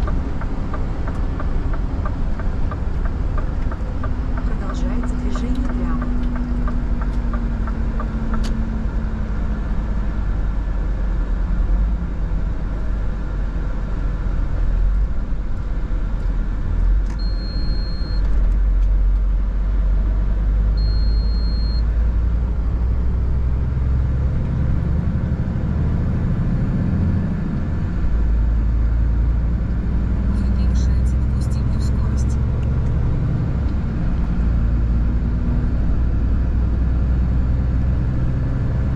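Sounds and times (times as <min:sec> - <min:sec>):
road noise: 0:00.0 - 0:38.9
truck diesel engine rumbling: 0:00.0 - 0:38.9
short high beeps: 0:17.2 - 0:18.2, 0:20.8 - 0:21.8.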